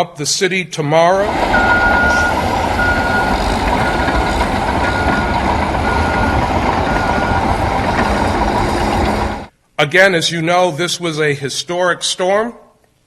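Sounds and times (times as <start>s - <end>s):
truck engine running: 1.2s - 9.5s
truck reversing alarm beeping: 1.2s - 9.5s.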